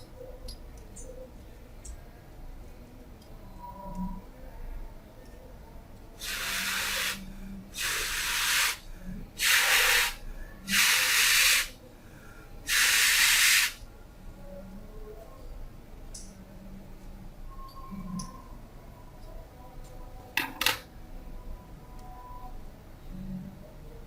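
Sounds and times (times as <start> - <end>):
pressurised nozzle hissing: 6.2 - 8.8, 9.4 - 11.8, 12.7 - 13.8.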